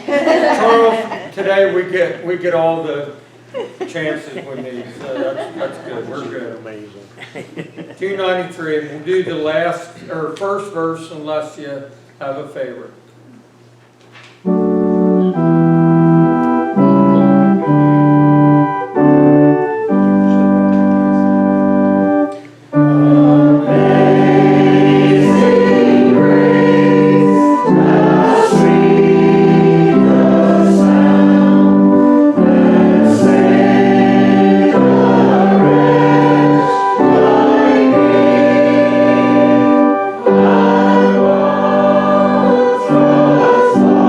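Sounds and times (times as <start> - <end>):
organ playing sustained chords: 14.4 - 44.0
congregation singing a hymn: 14.5 - 44.0.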